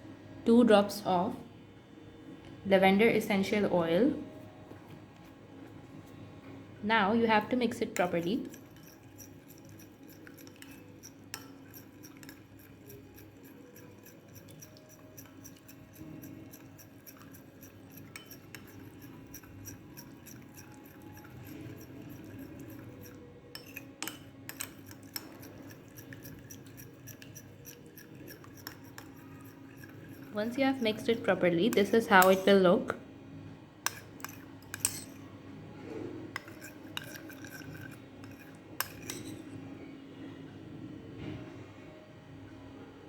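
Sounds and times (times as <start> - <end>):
utensil scraping and clinking bowl: 7.3 - 32.6, 33.8 - 35.3, 35.9 - 39.6.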